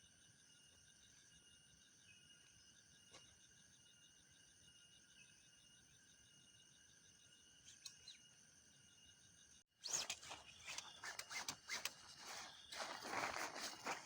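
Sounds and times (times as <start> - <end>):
crackling and rustling: 10.1 - 14.0
crickets chirping: 10.2 - 14.0.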